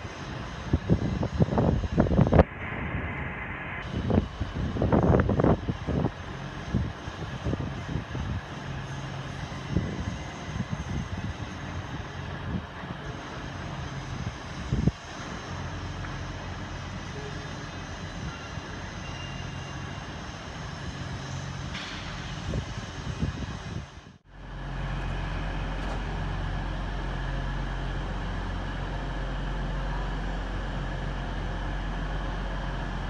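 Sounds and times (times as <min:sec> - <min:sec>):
low hum of standing trains: 0:00.0 - 0:33.0
electric train running: 0:03.8 - 0:24.0.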